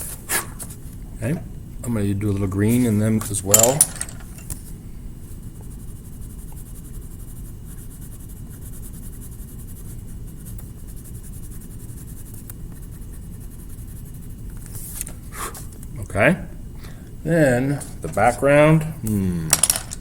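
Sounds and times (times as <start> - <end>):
colouring strokes scratching on paper: 5.2 - 15.1.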